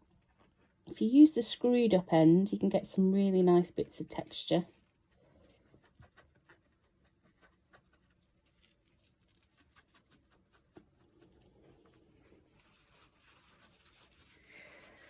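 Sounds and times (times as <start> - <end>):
tissue scratching on paper: 4.6 - 15.0.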